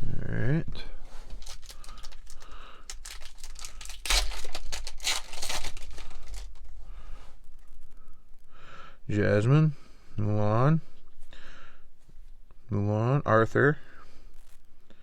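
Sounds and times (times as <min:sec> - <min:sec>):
foil wrapper tearing and crinkling: 0:01.1 - 0:06.7.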